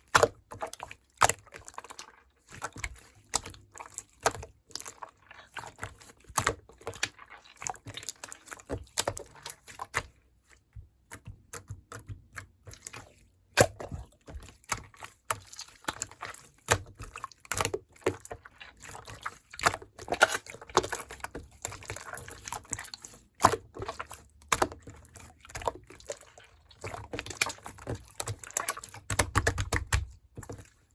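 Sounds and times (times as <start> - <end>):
liquid sounds: 0.1 - 10.1, 11.5 - 30.9
small clicks and taps: 10.7 - 12.8.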